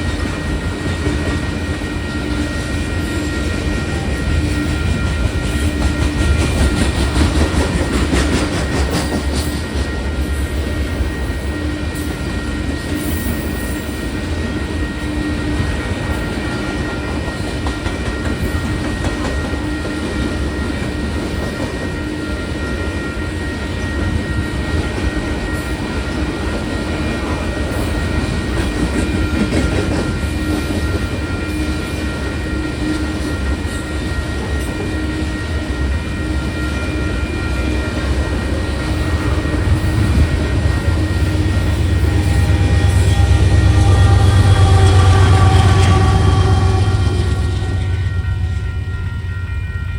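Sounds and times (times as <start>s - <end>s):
clickety-clack at rail joints: 0.0s - 48.7s
freight train wheels rumbling: 0.0s - 49.9s.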